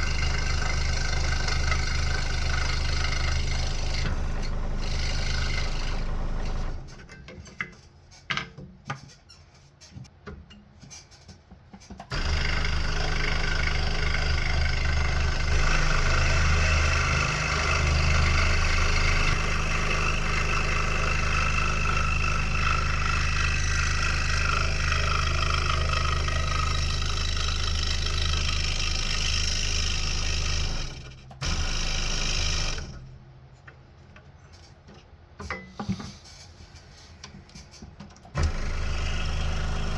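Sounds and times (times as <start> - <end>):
scroll saw cutting wood: 0.0 - 7.1, 12.1 - 33.1, 38.4 - 39.9.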